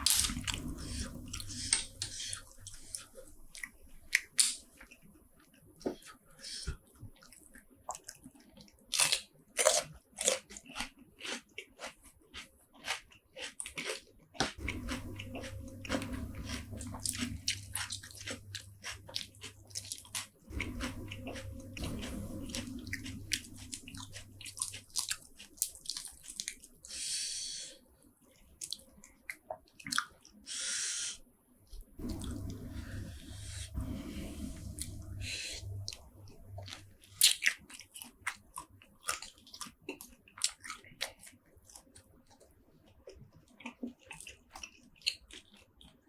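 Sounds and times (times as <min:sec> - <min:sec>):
wet slurp: 0:00.0 - 0:04.6, 0:14.6 - 0:27.1
crunching food: 0:00.0 - 0:05.0, 0:06.0 - 0:27.1, 0:34.5 - 0:46.0
chewing: 0:00.0 - 0:27.6, 0:28.3 - 0:30.5, 0:31.7 - 0:46.0.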